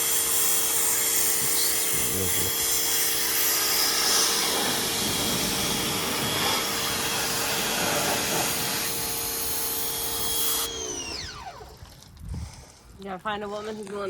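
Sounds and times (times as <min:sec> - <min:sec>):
pressure washer spraying water: 0:00.0 - 0:10.7
pressure washer motor humming: 0:00.0 - 0:11.8.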